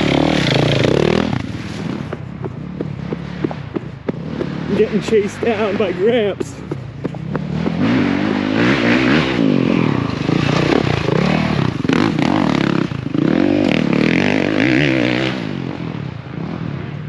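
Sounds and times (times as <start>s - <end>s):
dirt bike engine revving: 0.0s - 16.8s.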